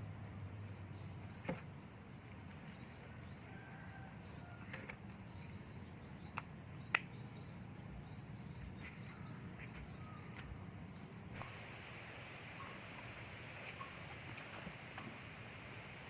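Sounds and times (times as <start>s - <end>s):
bird chirps: 0.7s - 11.1s.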